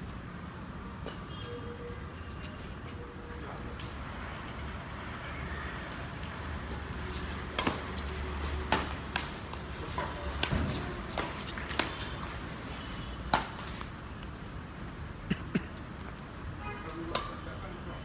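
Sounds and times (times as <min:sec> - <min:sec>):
footsteps shuffling on court: 0:06.6 - 0:15.0
rackets striking shuttlecock: 0:07.4 - 0:12.2, 0:13.2 - 0:13.8, 0:17.1 - 0:17.4.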